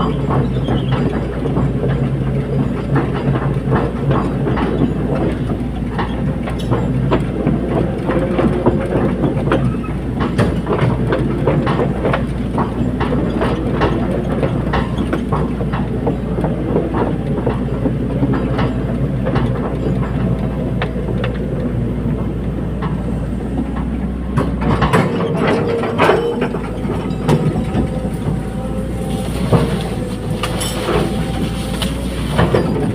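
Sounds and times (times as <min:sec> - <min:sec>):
excavator diesel engine running: 0:00.0 - 0:32.9
metallic clanks and knocks: 0:23.6 - 0:32.9.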